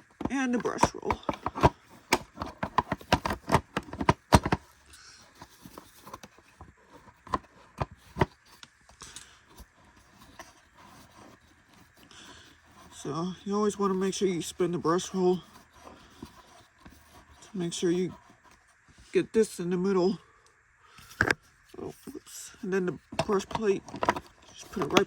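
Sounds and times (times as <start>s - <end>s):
faint handling: 0.0s - 19.2s, 20.8s - 25.0s
sharp plastic clicks and knocks: 0.2s - 4.6s.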